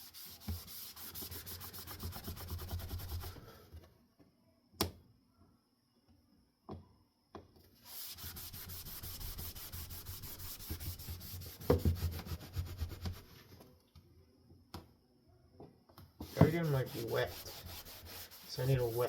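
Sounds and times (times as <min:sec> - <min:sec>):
scrubbing on wooden fan blade: 0:16.2 - 0:19.0.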